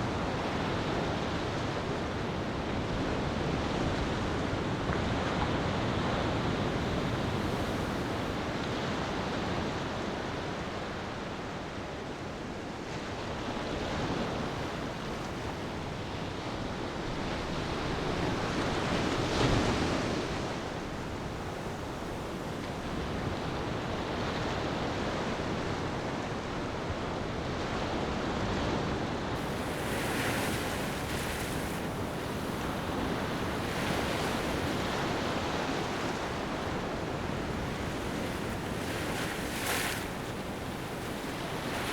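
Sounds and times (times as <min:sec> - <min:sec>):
ocean surf washing ashore: 0:00.0 - 0:27.6, 0:29.3 - 0:41.9.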